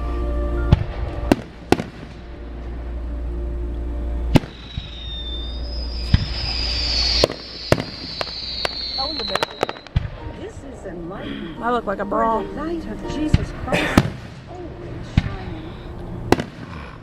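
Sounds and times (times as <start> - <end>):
firework bangs: 0.7 - 2.3, 4.3 - 10.7, 13.4 - 15.5, 16.3 - 16.7
falling firework whistle: 4.4 - 10.1.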